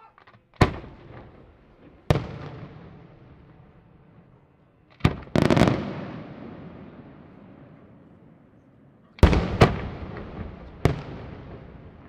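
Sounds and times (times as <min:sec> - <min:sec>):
rolling echo of bangs: 0:09.2 - 0:12.0.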